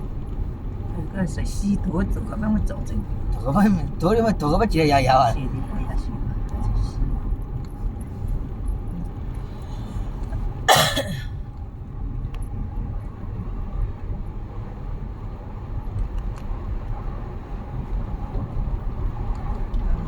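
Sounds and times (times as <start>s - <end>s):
car road and engine rumble: 0.0s - 20.0s
person coughing: 10.7s - 11.3s.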